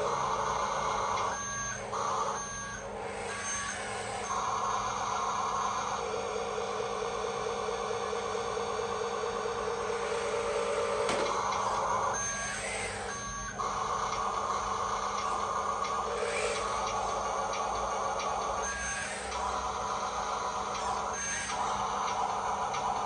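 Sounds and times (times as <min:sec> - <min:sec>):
toy truck motor and gears whirring: 0:00.0 - 0:23.0
short electronic beeps: 0:11.4 - 0:13.7.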